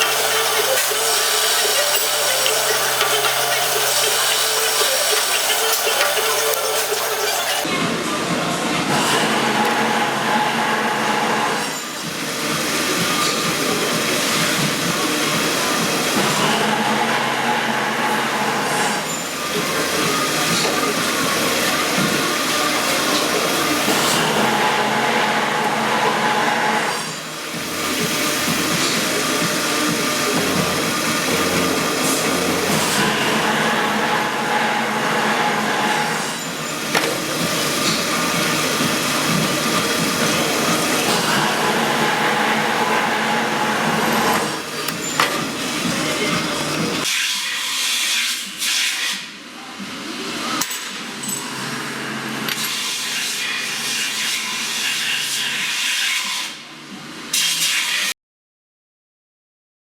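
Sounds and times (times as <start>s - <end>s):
power tool running: 0.0s - 7.8s, 8.9s - 47.2s.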